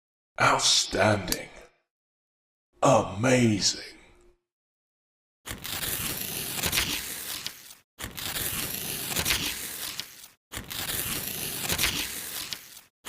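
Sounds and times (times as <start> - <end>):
packaging crinkling and tearing: 5.5 - 12.9.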